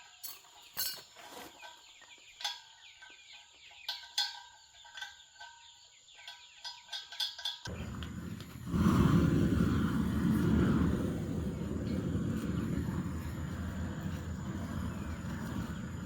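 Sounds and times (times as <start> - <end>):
chickens clucking and cheeping: 0.5 - 7.5
loud low rumble: 7.7 - 16.0.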